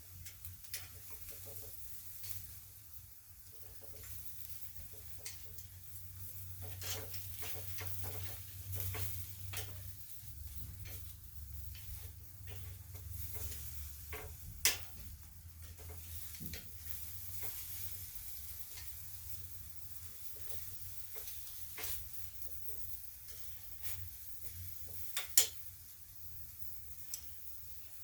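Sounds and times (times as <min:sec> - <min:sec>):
meat sizzling over charcoal: 0:00.0 - 0:28.0.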